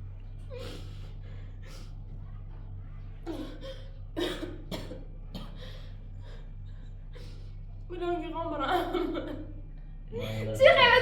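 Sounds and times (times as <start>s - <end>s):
steady low hum: 0.0s - 11.0s
person coughing: 3.3s - 5.6s.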